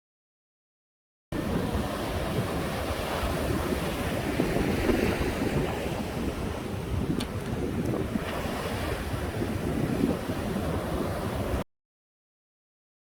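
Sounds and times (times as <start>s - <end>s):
surf washing on a beach: 1.4s - 11.6s
wind buffeting the microphone: 1.4s - 11.6s.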